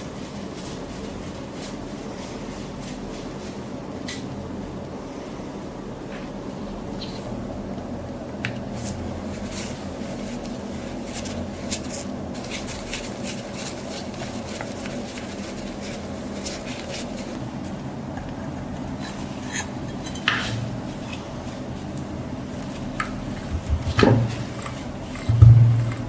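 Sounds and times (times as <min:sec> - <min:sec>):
steady low hum: 0:00.0 - 0:26.0
louder knocks: 0:25.3 - 0:26.0.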